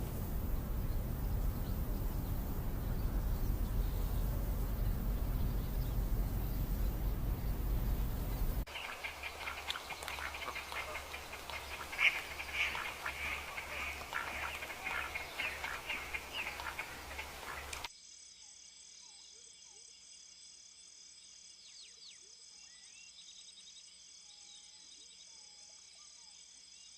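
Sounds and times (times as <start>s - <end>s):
low pulsing hum: 0.0s - 17.9s
insect trills: 0.0s - 26.9s
chattering animal calls: 0.5s - 17.9s.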